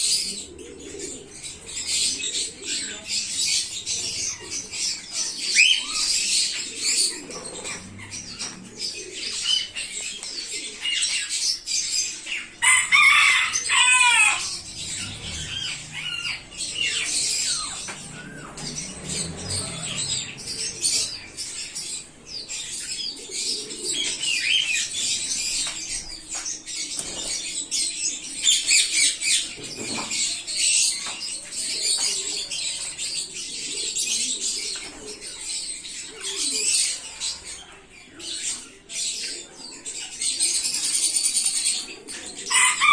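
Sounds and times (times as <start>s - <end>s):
budgerigars chattering: 10.5s - 26.2s.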